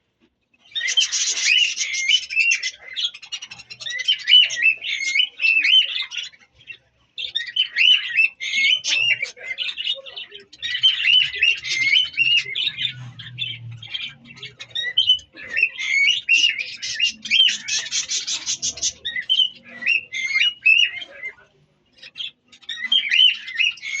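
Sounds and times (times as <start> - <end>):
budgerigars chattering and chirping: 0.6 - 24.0.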